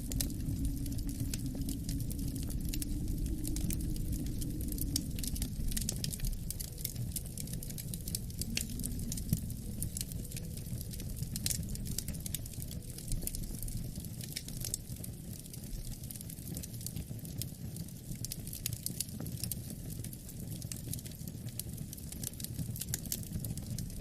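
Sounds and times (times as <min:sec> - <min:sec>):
wind rumble: 0:00.0 - 0:15.2
wood fire crackling: 0:00.0 - 0:24.0.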